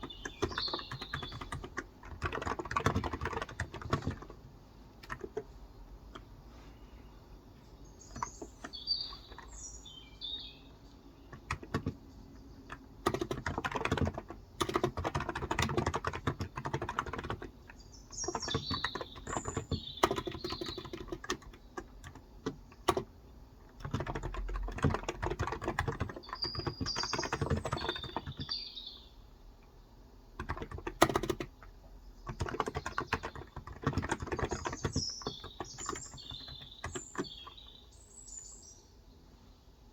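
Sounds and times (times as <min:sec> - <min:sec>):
small bird chirping: 0:00.0 - 0:04.3, 0:06.6 - 0:13.6, 0:14.7 - 0:22.0, 0:23.9 - 0:29.2, 0:32.0 - 0:39.6
keyboard typing: 0:00.0 - 0:06.3, 0:08.1 - 0:09.7, 0:10.8 - 0:28.6, 0:30.4 - 0:37.6.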